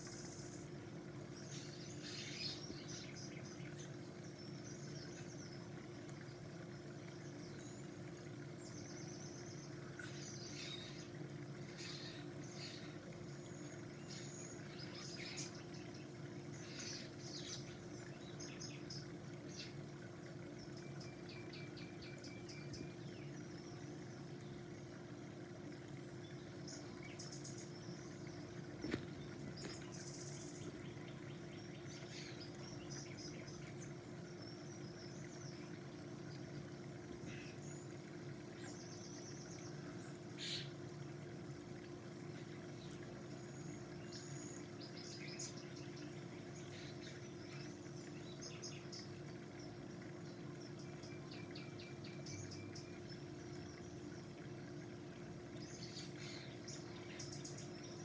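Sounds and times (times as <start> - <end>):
birds chirping and calling: 1.4 - 5.5, 8.7 - 24.0, 26.4 - 35.7, 38.6 - 40.8, 55.5 - 58.0.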